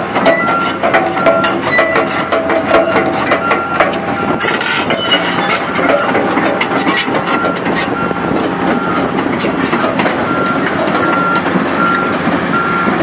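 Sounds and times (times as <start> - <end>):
rapid metallic clanking: 0.0 - 11.6
hydraulic excavator running: 0.0 - 13.0
short squeals: 0.3 - 8.2, 10.4 - 12.1.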